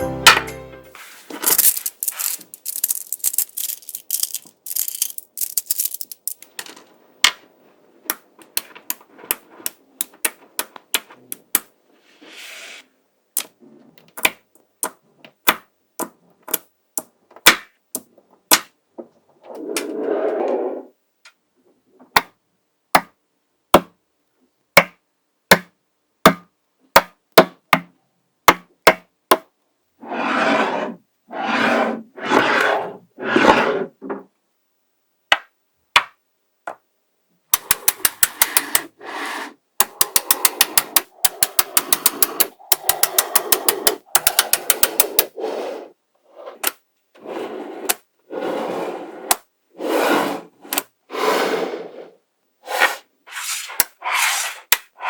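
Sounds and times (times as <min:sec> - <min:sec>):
magnetic balls scraping: 0:01.0 - 0:06.6, 0:30.0 - 0:34.0, 0:37.6 - 0:52.0, 0:52.6 - 0:55.0
magnetic balls clicking together: 0:01.4 - 0:06.7, 0:37.5 - 0:38.9, 0:39.8 - 0:45.4.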